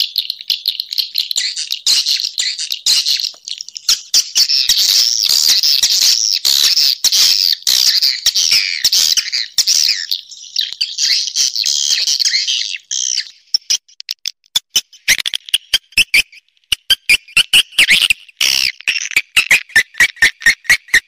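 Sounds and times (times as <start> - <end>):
swiftlet clicks and chirps: 13.6 - 21.0.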